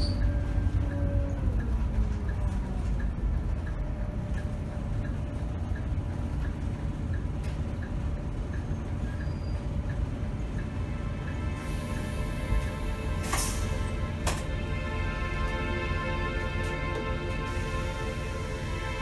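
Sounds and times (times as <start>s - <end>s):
turn signal ticking: 0.0s - 12.1s
diesel bus engine rumbling: 0.0s - 19.0s.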